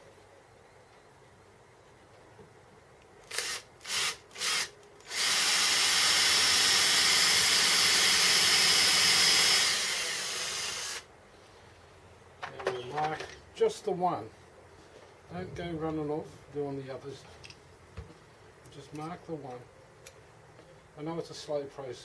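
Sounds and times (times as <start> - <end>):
electric drill running: 3.2 - 11.1.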